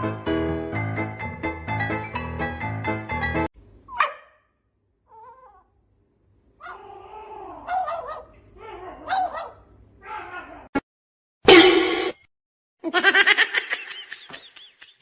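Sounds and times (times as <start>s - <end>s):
dog whining yips: 3.9s - 4.4s, 6.6s - 10.3s.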